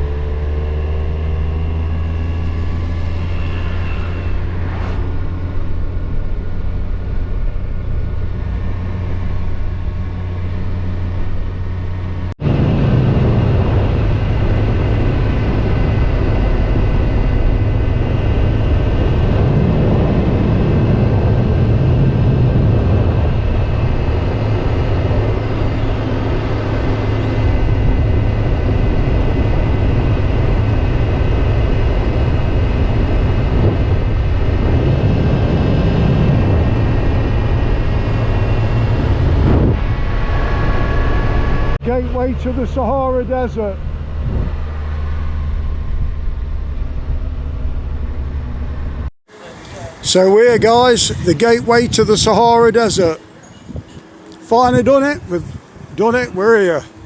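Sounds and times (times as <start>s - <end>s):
motorcycle engine running: 0.0s - 12.3s
wind and road noise: 0.0s - 57.0s.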